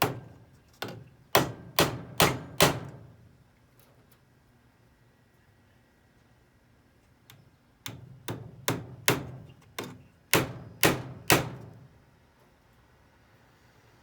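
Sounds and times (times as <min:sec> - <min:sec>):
hammer striking nail into wood: 0:00.0 - 0:03.0, 0:07.9 - 0:09.5, 0:10.3 - 0:11.8.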